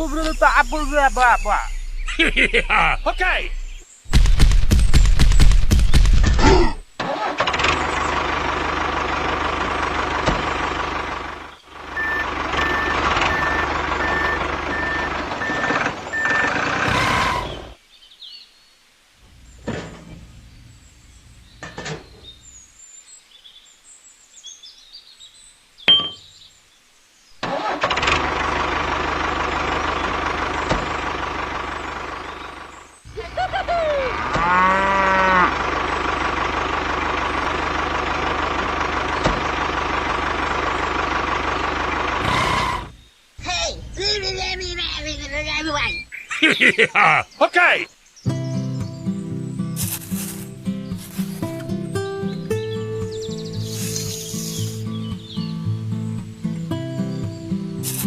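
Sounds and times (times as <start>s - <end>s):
tractor engine running: 0.0s - 17.8s, 27.4s - 46.8s, 49.7s - 55.4s
short even beeps: 12.0s - 16.5s.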